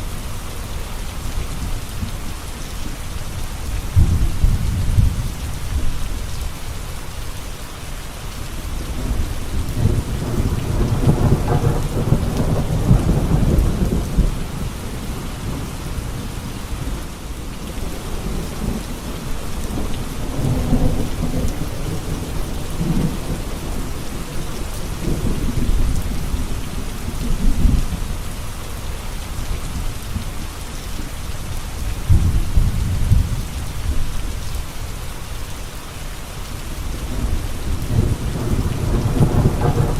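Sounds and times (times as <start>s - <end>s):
steady rain: 0.0s - 39.9s
thunder rolling: 9.0s - 15.7s, 37.0s - 39.9s.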